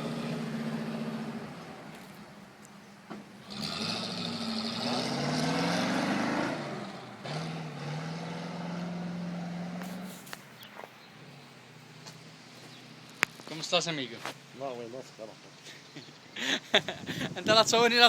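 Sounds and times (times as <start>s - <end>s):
motor vehicle engine running: 0.0s - 2.5s.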